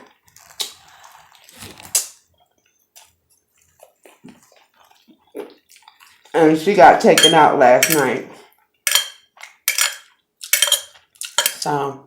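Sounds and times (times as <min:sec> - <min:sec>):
wet chewing and smacking: 0:00.1 - 0:06.4.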